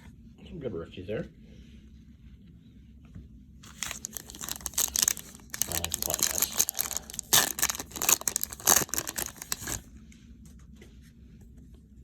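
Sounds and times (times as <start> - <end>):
cards being handled: 3.6 - 9.8
foil wrapper tearing and crinkling: 3.6 - 9.8.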